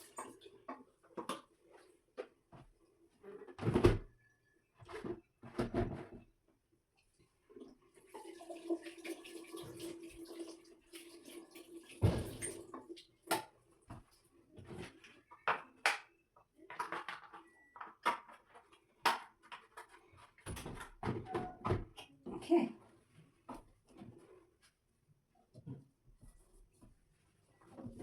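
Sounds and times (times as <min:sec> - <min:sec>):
water running and splashing: 0:08.1 - 0:13.2.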